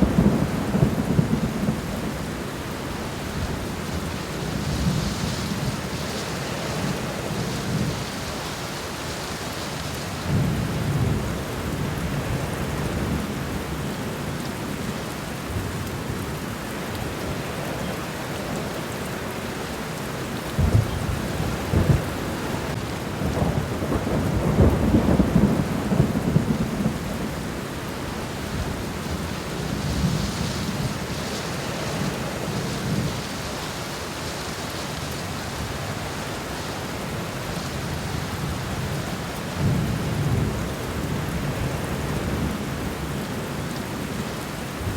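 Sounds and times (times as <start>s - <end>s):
low thunder rumbles: 0.0s - 8.4s, 20.4s - 33.4s, 36.4s - 44.2s
rain falling on ground: 0.0s - 44.9s.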